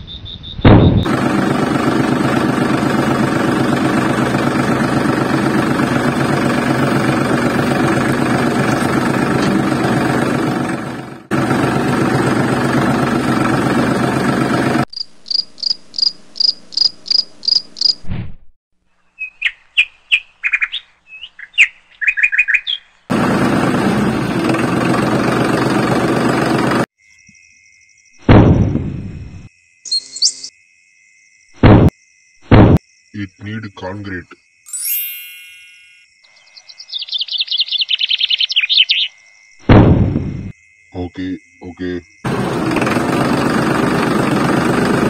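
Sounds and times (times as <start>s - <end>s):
engine-like drone: 1.0s - 14.9s, 23.1s - 26.9s, 41.6s - 45.0s
small birds chirping: 19.0s - 23.1s, 29.9s - 30.5s, 36.2s - 39.2s.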